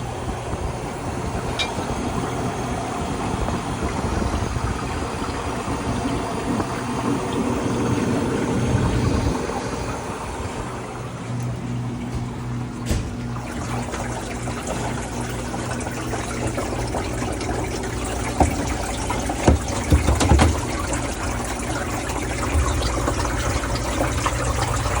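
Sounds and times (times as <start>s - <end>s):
ice machine humming: 0.0s - 25.0s
water flowing: 0.0s - 25.0s
ice machine knocks: 1.5s - 2.0s, 18.3s - 20.8s.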